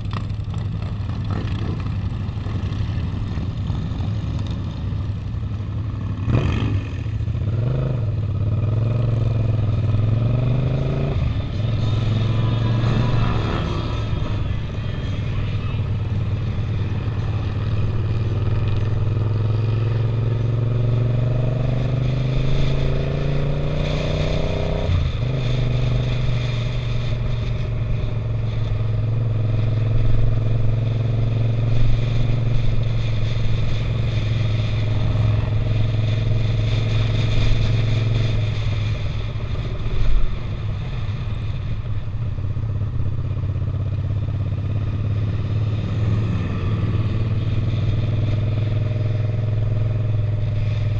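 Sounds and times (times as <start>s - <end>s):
motorcycle engine revving: 0.0s - 42.0s, 42.7s - 50.9s.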